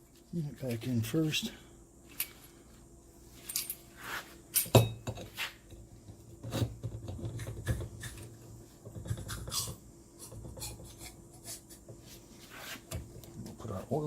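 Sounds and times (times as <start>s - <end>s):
rubbing handling noise: 3.2s - 4.5s, 10.2s - 13.2s
metal parts clinking and knocking: 3.4s - 3.8s.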